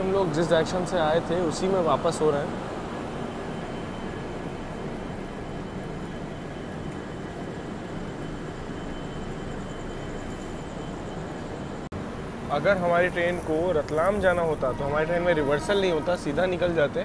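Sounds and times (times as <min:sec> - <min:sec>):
train running noise: 0:00.0 - 0:17.0.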